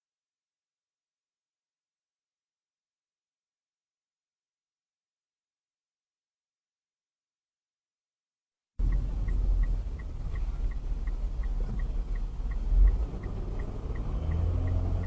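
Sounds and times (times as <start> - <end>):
even ticking: 8.8 - 15.0
road and engine rumble in car: 8.8 - 15.0.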